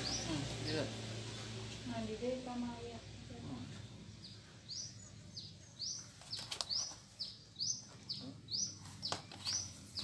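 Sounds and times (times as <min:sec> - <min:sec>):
bird chirping: 0:00.0 - 0:01.6, 0:03.6 - 0:10.0.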